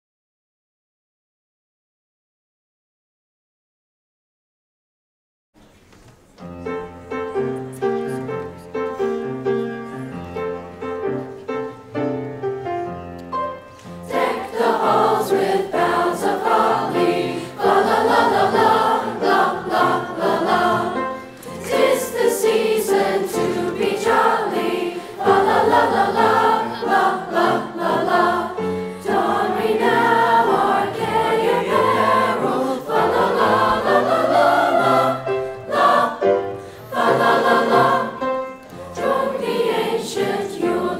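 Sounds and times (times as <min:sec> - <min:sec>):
chorus singing with accompaniment: 0:13.8 - 0:40.9.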